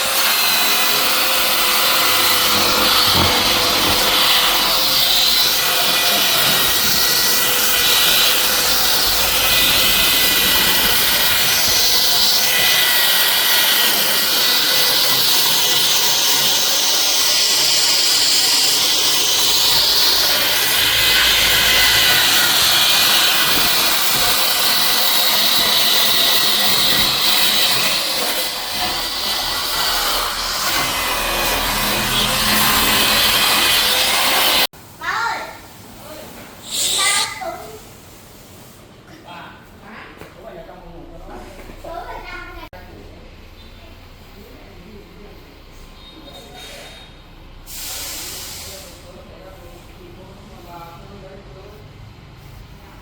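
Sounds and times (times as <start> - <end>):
wood-processing machine running: 0.0 - 34.7.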